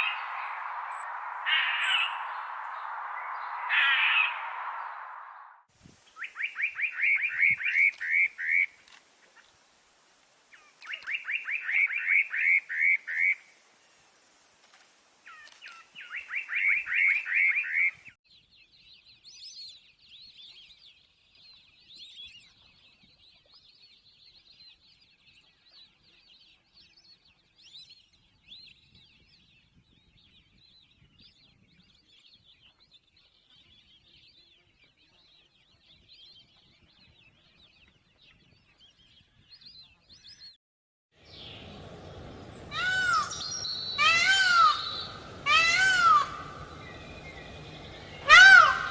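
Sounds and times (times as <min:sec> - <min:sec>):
chattering of high animal calls: 0:00.0 - 0:02.5, 0:42.6 - 0:48.9
rapid high-pitched animal chirps: 0:00.0 - 0:02.6.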